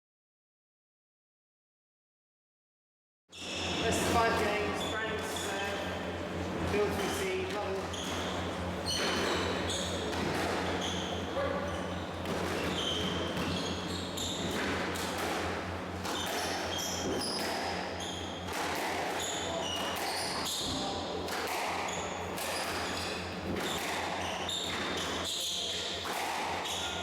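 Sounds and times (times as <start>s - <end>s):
shoe squeaks on court: 7.8s - 14.7s, 16.0s - 21.0s, 21.8s - 27.0s
squash ball hits: 8.1s - 10.8s, 12.2s - 27.0s.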